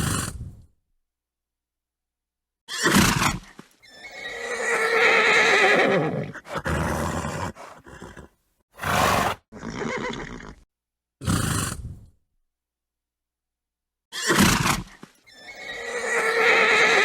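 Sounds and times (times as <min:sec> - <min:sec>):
horse whinnying: 0:02.7 - 0:10.6, 0:14.1 - 0:17.0
horse snorting: 0:05.8 - 0:10.6, 0:11.2 - 0:12.1.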